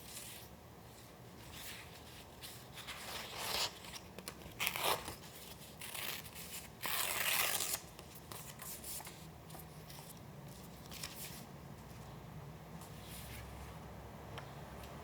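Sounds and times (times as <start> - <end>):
paper tearing: 5.8 - 7.8.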